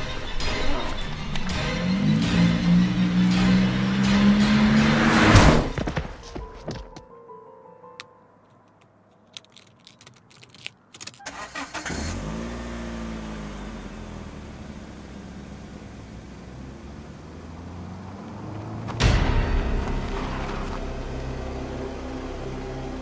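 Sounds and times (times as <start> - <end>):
car engine starting and running: 0.0 - 5.9, 9.6 - 23.0
clicks and rattles: 8.5 - 11.3.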